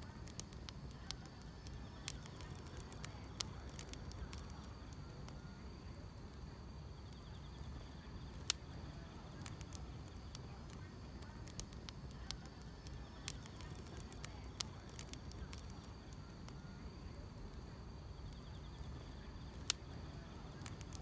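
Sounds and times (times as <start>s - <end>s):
grass insects chirping: 0.0s - 5.8s, 6.9s - 16.9s
wood fire crackling: 0.0s - 21.0s.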